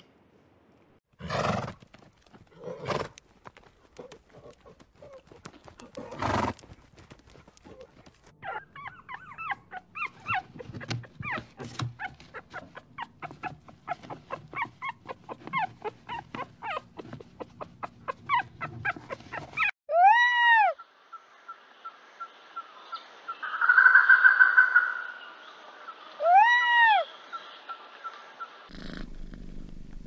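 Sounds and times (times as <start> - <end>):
puppies whimpering and squeaking: 8.4 - 19.8
horse snort: 28.7 - 30.0.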